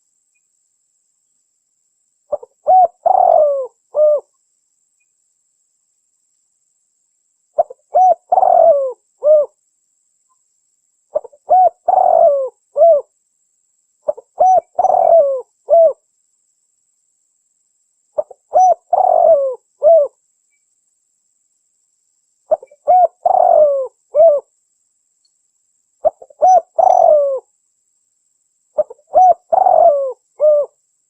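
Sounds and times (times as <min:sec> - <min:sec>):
dove cooing: 0:02.3 - 0:04.3, 0:07.6 - 0:09.6, 0:11.1 - 0:13.1, 0:14.1 - 0:16.0, 0:18.2 - 0:20.2, 0:22.5 - 0:24.5, 0:26.0 - 0:27.5, 0:28.8 - 0:30.8.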